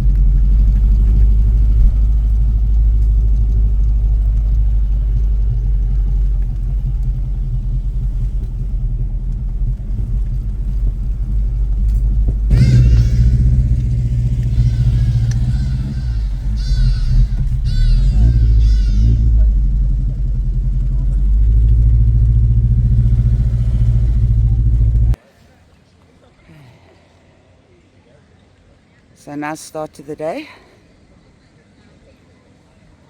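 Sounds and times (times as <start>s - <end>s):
car engine rumbling: 0.0s - 25.2s.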